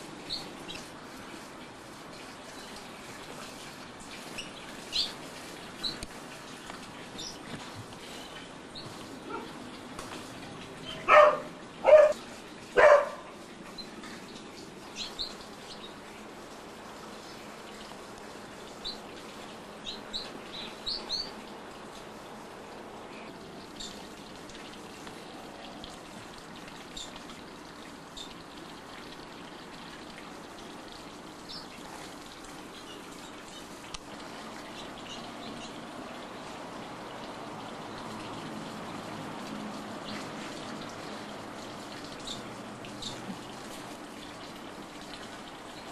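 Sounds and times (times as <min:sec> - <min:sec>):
dog barking: 0:09.3 - 0:09.5, 0:10.9 - 0:12.2, 0:12.8 - 0:13.3.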